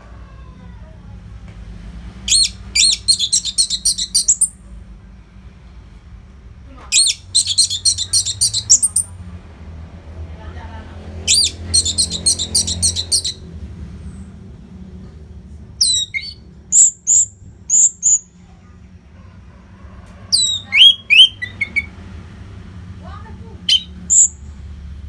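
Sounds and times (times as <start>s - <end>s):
thrush singing: 2.3s - 4.5s, 7.0s - 9.1s, 11.3s - 13.4s.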